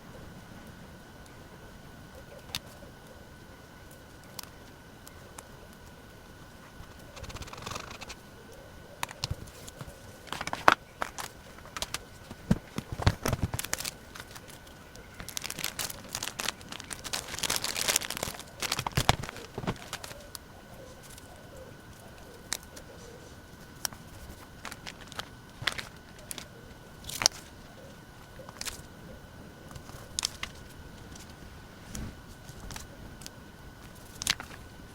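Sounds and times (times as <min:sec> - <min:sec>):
paper crinkling and rustling: 0:06.6 - 0:29.0, 0:29.7 - 0:34.9.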